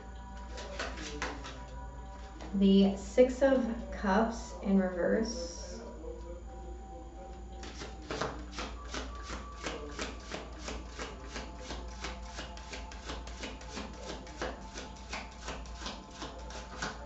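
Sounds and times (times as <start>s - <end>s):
cards being shuffled by hand: 0.4s - 1.6s, 7.6s - 17.0s.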